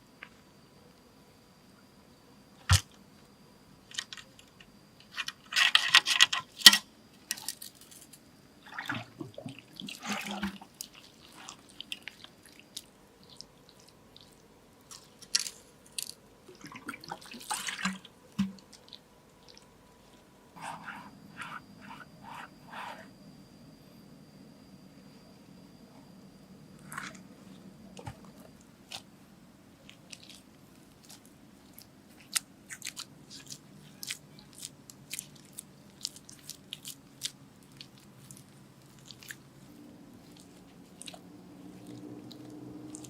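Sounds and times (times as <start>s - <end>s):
water splashing and sloshing: 8.6s - 12.4s, 16.5s - 19.6s.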